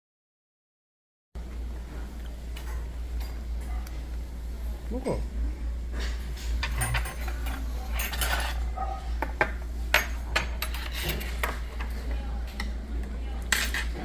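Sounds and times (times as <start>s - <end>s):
cutlery clinking against bowls: 6.6s - 12.8s, 13.4s - 14.0s.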